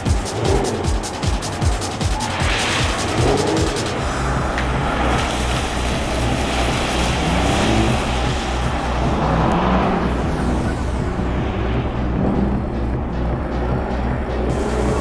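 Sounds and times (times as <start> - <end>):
car engine revving: 0.0 - 15.0
road and tyre noise: 0.0 - 15.0.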